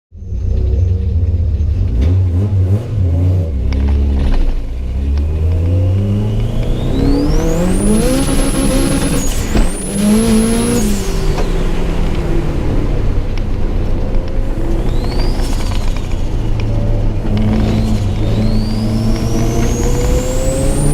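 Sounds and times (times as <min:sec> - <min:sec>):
car engine accelerating hard: 0:00.2 - 0:20.9
high whine: 0:04.6 - 0:20.9.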